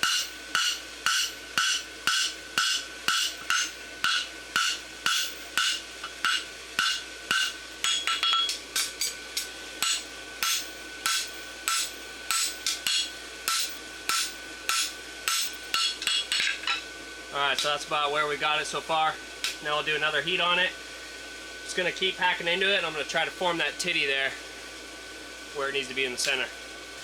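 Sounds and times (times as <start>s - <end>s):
hammer striking steel on anvil: 0.0s - 16.9s.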